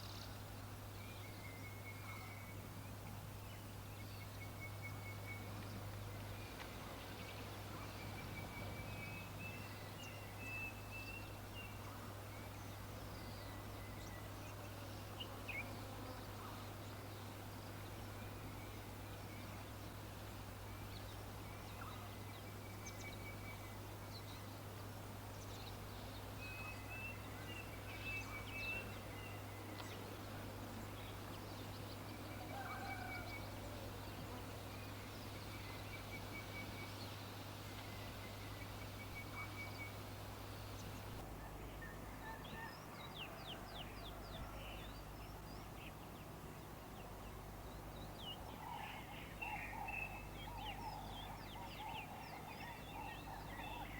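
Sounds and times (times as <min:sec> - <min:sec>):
birds chirping and trilling: 0:47.0 - 0:53.9.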